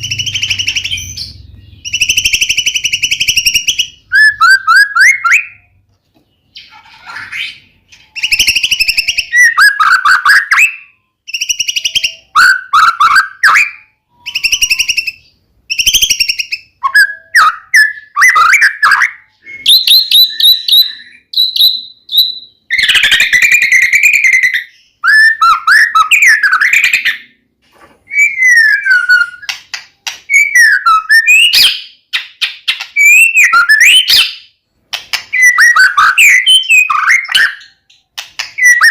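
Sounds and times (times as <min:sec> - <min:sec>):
bird singing whistled phrases: 0:00.0 - 0:05.8, 0:07.2 - 0:27.3, 0:28.1 - 0:29.6, 0:30.3 - 0:34.5, 0:35.3 - 0:37.9, 0:38.5 - 0:38.9.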